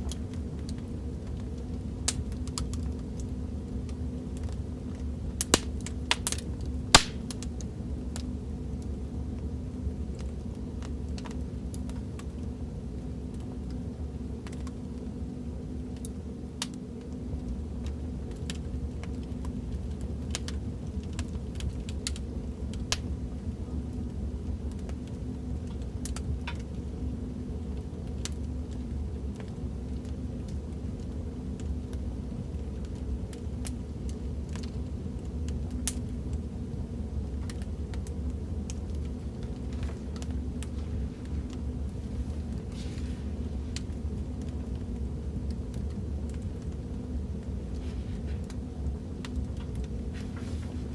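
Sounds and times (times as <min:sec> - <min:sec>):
burning wood popping and snapping: 0:00.0 - 0:08.9, 0:16.0 - 0:26.8, 0:27.6 - 0:36.6, 0:37.2 - 0:50.9
low rumble of fire: 0:00.0 - 0:50.9.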